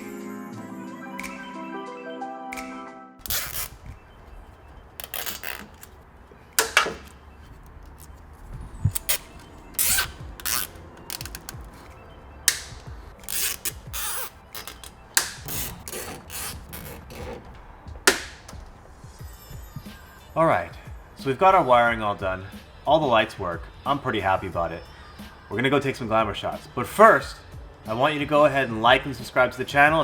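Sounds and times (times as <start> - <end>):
zip ties rasping and clicking: 3.2 - 3.9, 5.0 - 6.0, 6.6 - 11.9, 12.5 - 18.6.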